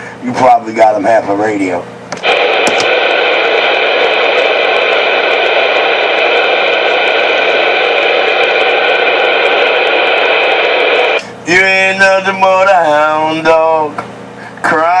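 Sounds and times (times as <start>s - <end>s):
radio static hiss: 0.0s - 11.4s.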